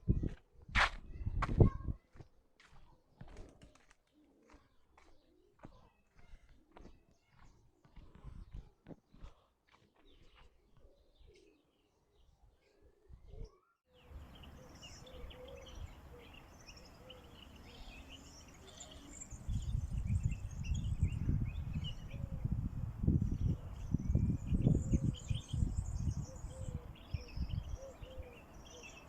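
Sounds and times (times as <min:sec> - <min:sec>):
wind rumble on microphone: 0:00.0 - 0:02.0, 0:19.2 - 0:28.4
many birds chirping: 0:01.2 - 0:29.0.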